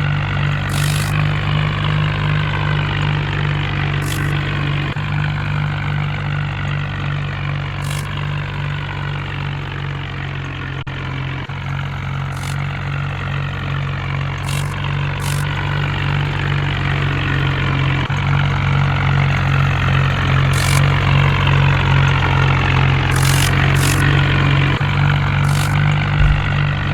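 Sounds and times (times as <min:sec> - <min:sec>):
brief high hisses: 0:00.7 - 0:01.3, 0:04.0 - 0:04.4, 0:12.4 - 0:12.6, 0:14.5 - 0:15.5, 0:20.6 - 0:21.0, 0:23.1 - 0:24.2, 0:25.5 - 0:26.0
heavy vehicle engine idling: 0:11.4 - 0:26.9.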